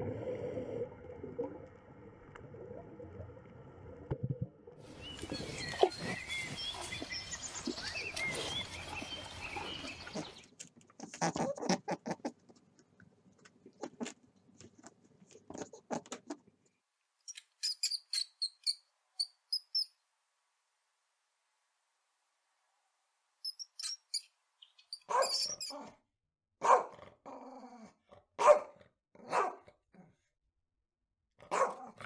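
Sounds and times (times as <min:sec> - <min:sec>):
hamster squeaking: 0:23.5 - 0:25.9.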